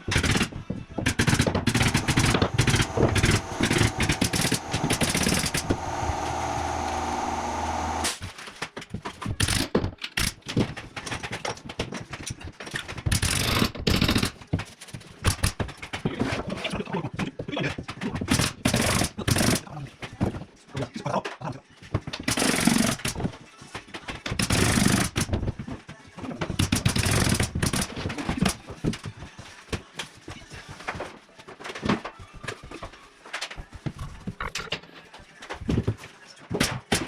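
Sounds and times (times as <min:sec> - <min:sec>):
sharp wooden knocks and clatter: 0:00.0 - 0:16.6
steady machine hum: 0:01.8 - 0:08.2.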